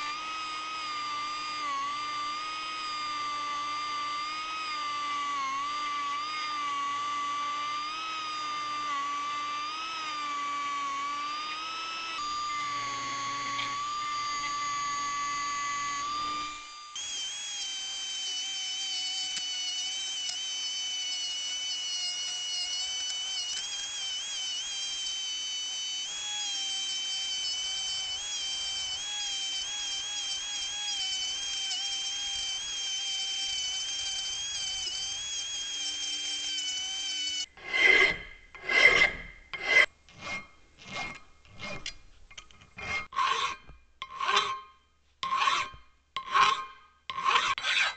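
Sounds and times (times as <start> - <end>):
rotary tool grinding metal: 0.0 - 47.9
hand file rasping on metal: 37.6 - 42.0, 42.6 - 47.9.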